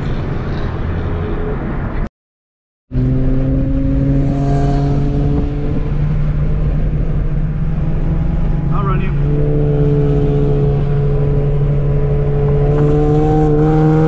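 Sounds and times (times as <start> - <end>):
road noise in car cabin: 0.0 - 2.1, 3.0 - 14.0
car engine cruising: 2.9 - 14.0.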